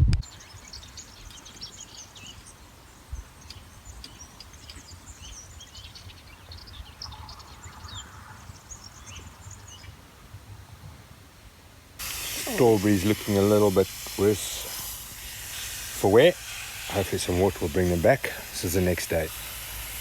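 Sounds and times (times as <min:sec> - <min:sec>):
small birds chirping: 0:00.2 - 0:10.0.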